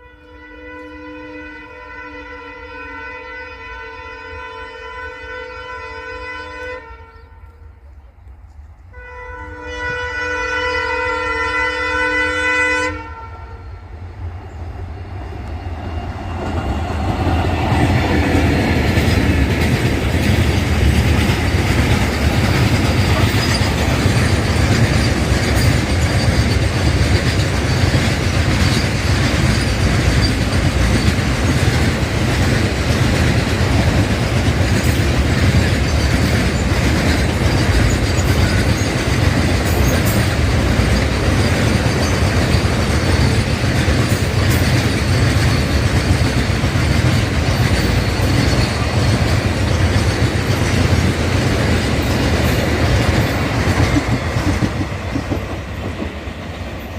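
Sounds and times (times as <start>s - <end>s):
locomotive horn: 0.0s - 7.9s, 8.9s - 13.9s
freight train rumble: 0.0s - 56.9s
wheels clattering over rail joints: 16.4s - 56.9s.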